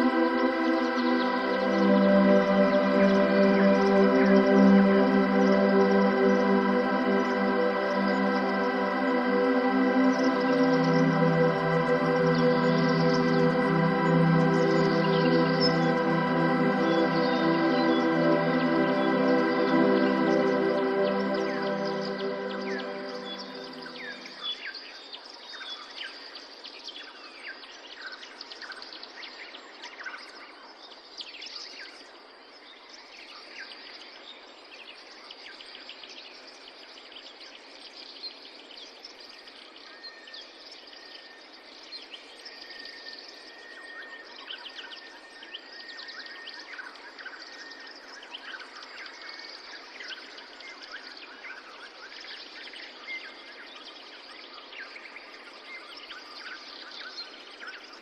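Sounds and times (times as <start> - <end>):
birds chirping and trilling: 0.0 - 24.4
long level high note: 0.0 - 24.4
outdoor ambience hiss: 0.0 - 24.5.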